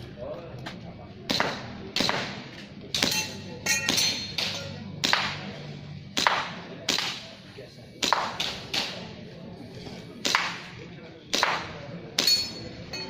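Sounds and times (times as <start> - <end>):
airsoft pistol shots: 1.3 - 3.2, 3.9 - 5.5, 6.2 - 7.4, 8.0 - 9.0, 10.2 - 10.7, 11.3 - 12.3
metallic ring of hit plate: 3.0 - 4.8, 12.2 - 13.0.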